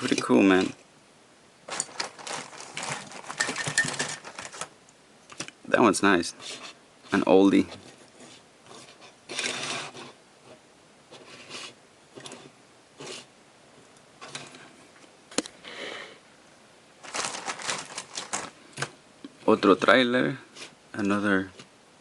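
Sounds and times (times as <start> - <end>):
toy cars rustling and scraping: 1.7 - 4.7, 6.4 - 13.3.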